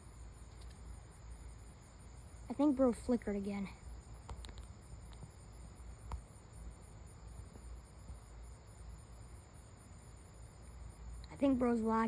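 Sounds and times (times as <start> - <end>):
insect buzz: 0.0 - 12.0
pulsing insect trill: 0.0 - 12.0.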